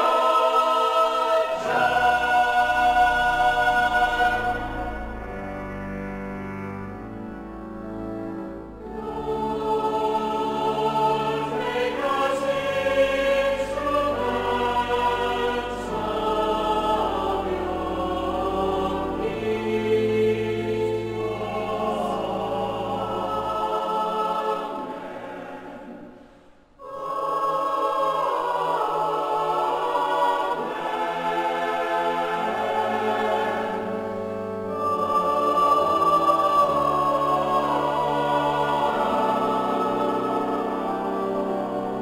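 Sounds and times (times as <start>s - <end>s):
low sustained accompaniment: 0.0s - 24.8s, 26.8s - 42.0s
choir singing sacred music: 0.0s - 42.0s.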